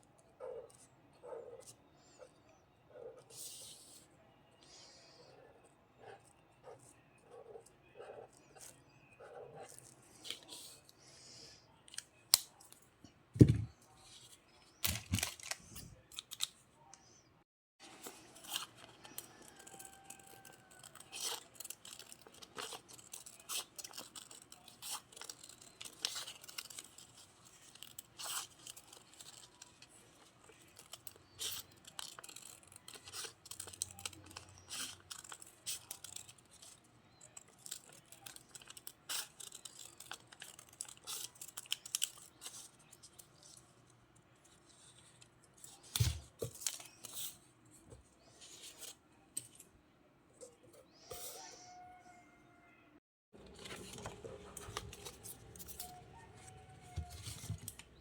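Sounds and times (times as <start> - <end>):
paper rustling: 14.0 - 16.6, 53.4 - 58.0
scissors cutting paper: 18.0 - 43.1.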